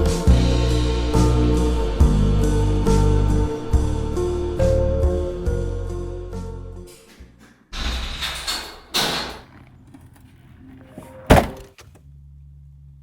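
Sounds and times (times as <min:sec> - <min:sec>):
door shutting with a thud: 0:11.2 - 0:12.0.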